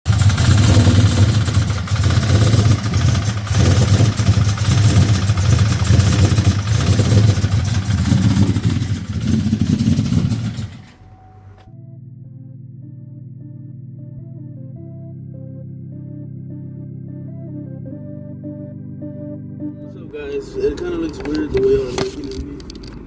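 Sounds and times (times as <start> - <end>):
truck engine running: 0.0 - 11.7, 20.1 - 23.0.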